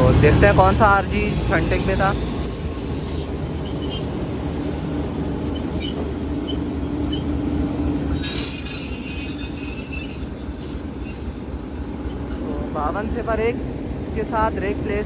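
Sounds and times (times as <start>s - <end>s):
train wheels squealing on rails: 0.0s - 14.0s
train rumbling: 0.0s - 15.0s.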